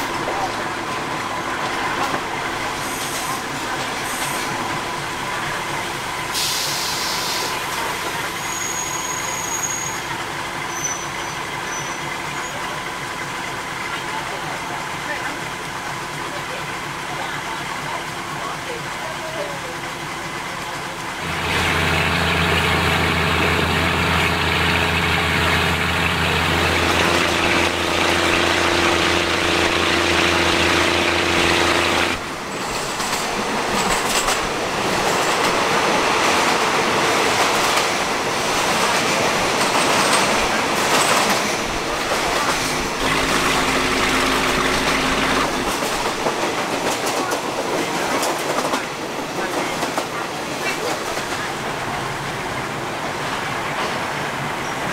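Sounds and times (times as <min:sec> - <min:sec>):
train wheels rushing on rails: 0:00.0 - 0:54.9
diesel engine drone: 0:21.2 - 0:32.3, 0:42.8 - 0:45.8.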